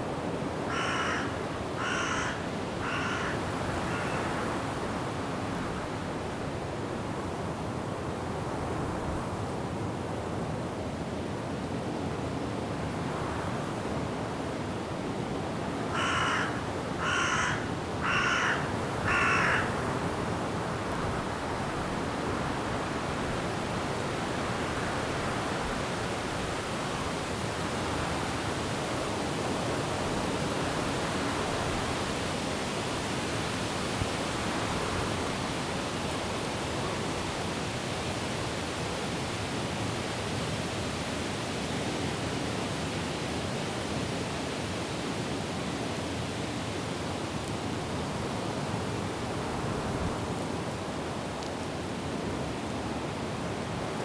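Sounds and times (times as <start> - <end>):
wind through trees: 0.0 - 54.0
bird harsh calls: 0.7 - 4.3, 16.0 - 19.7.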